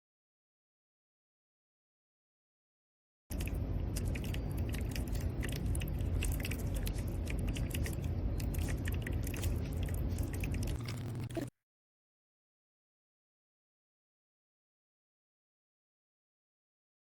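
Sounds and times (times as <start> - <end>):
steady low rumble: 3.3 - 11.5.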